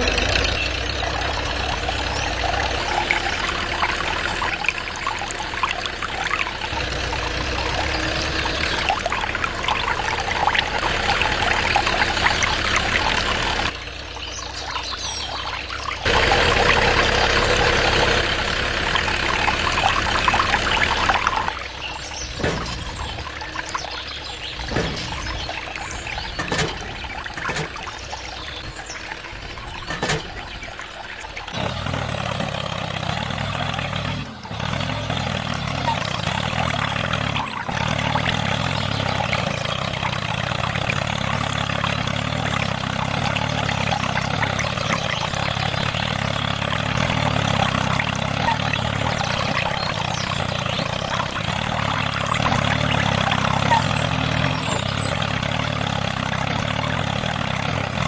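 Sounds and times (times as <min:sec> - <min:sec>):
small motor running: 0:00.0 - 0:29.8.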